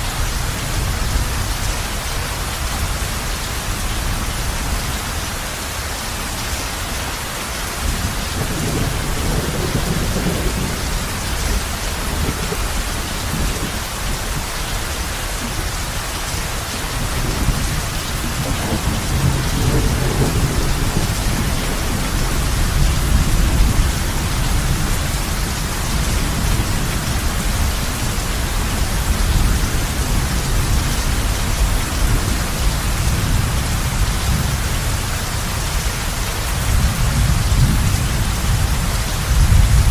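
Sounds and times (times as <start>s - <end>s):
heavy rain on a roof: 0.0s - 39.9s
rolling thunder: 7.8s - 14.5s, 16.9s - 34.7s, 36.6s - 39.9s.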